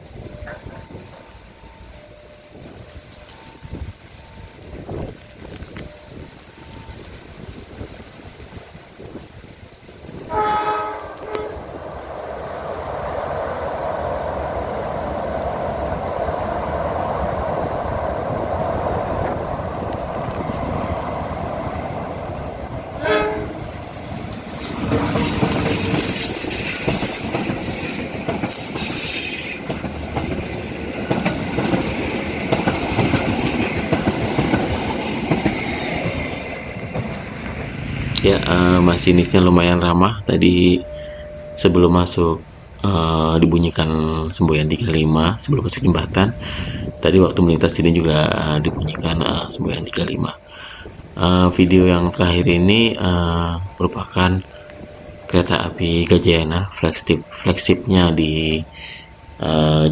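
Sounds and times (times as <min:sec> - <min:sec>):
locomotive engine noise: 0:00.0 - 0:59.9
train rumbling: 0:00.0 - 0:59.9
wheels clacking over rail joints: 0:04.2 - 0:39.5
train horn blasts: 0:10.2 - 0:11.8, 0:22.9 - 0:23.8.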